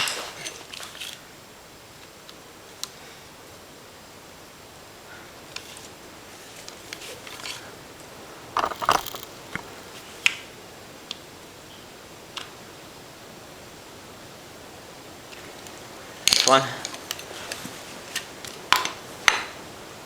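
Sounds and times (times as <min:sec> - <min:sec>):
small parts clicking and rattling: 0:08.5 - 0:10.0.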